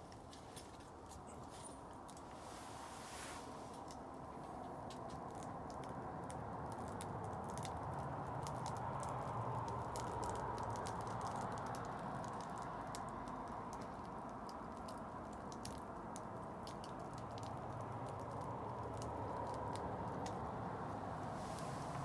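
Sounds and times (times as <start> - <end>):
fire rushing: 20.8 - 22.0.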